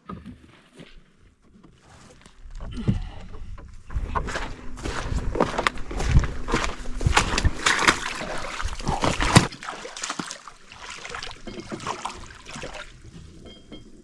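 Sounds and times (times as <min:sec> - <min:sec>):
water splashing against a dock: 0:04.0 - 0:13.6.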